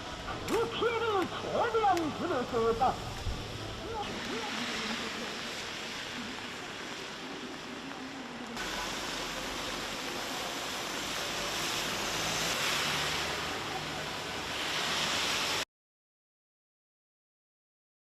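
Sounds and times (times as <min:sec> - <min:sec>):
surging water: 0:00.0 - 0:15.6
storm wind rushing: 0:02.6 - 0:10.2.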